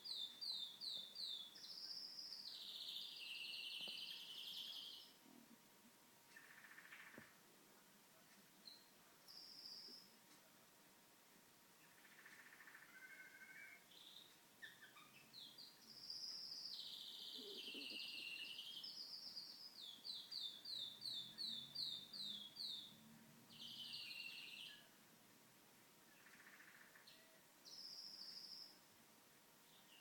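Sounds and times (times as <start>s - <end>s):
canary singing: 0.0s - 5.2s, 11.8s - 25.0s.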